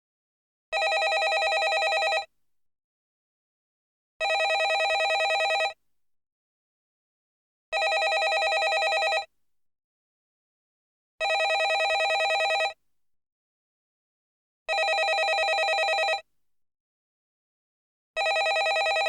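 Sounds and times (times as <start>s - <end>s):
telephone ringing: 0.8s - 2.3s, 4.2s - 5.8s, 7.8s - 9.3s, 11.2s - 12.8s, 14.7s - 16.2s, 18.2s - 19.0s.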